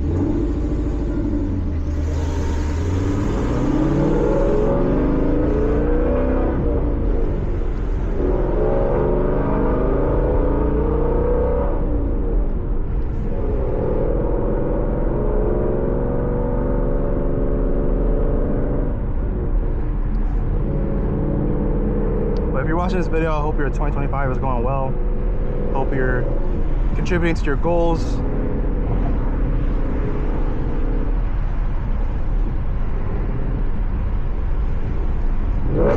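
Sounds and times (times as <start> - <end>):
car engine accelerating: 0.0 - 35.9.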